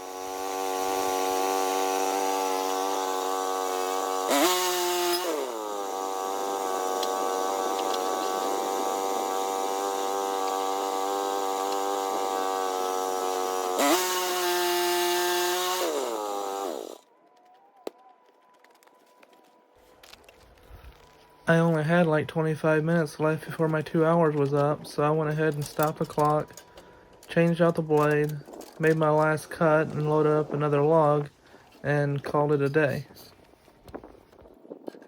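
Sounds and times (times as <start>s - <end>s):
sawmill gas engine running: 0.0s - 17.0s.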